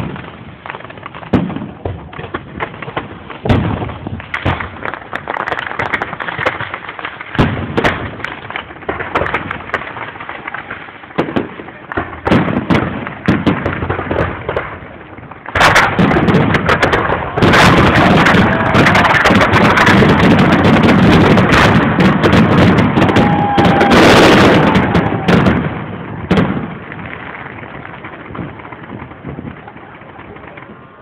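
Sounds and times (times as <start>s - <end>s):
fireworks bangs and crackling: 0.0s - 31.0s.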